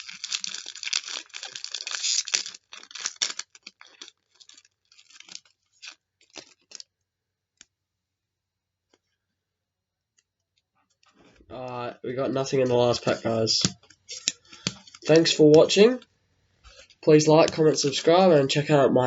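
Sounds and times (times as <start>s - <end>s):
wrapper tearing and crinkling: 0.0s - 6.9s, 12.6s - 15.4s.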